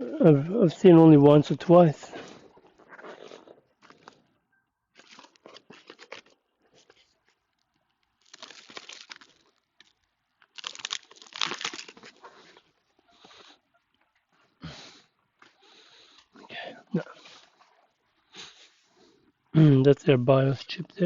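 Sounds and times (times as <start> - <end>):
crinkling and rustling handling noise: 2.1 - 14.6.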